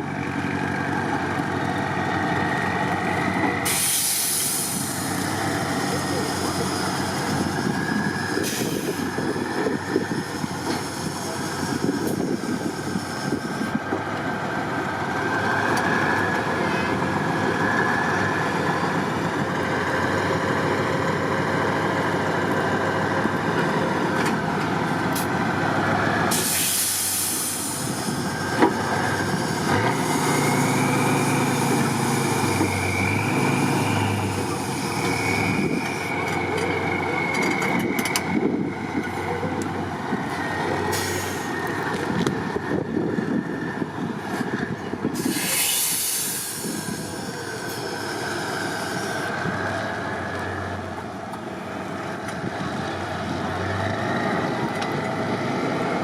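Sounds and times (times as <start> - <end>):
truck engines under load: 0.0 - 56.0
compressed air hiss: 3.6 - 5.2, 26.3 - 28.2, 45.2 - 48.0.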